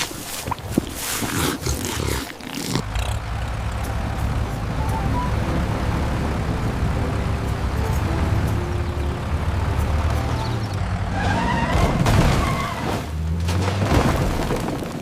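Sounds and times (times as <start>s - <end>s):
cartoon truck engine rumble: 2.6s - 15.0s
tyres squealing in a skid: 11.0s - 13.1s.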